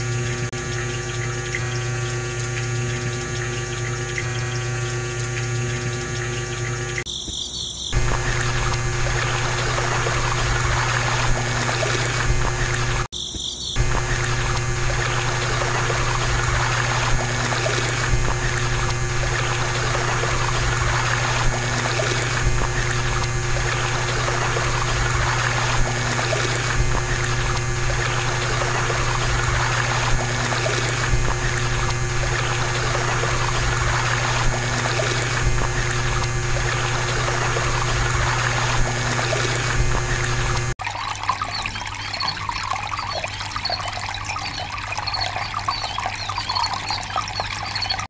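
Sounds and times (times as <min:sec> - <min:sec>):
small pump motor hum: 0:00.0 - 0:07.1, 0:07.9 - 0:13.1, 0:13.8 - 0:48.0
water splashing on brick: 0:08.0 - 0:13.1, 0:13.8 - 0:40.8.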